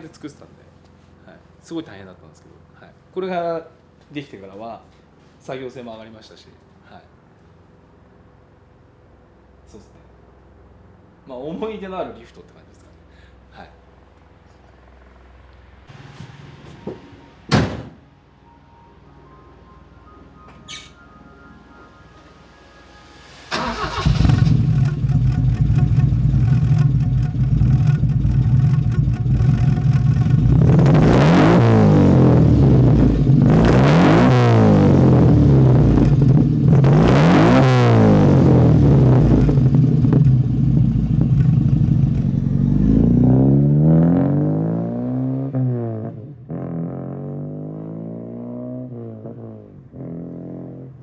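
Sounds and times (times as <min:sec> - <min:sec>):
car engine idling and revving: 0:22.7 - 0:51.0.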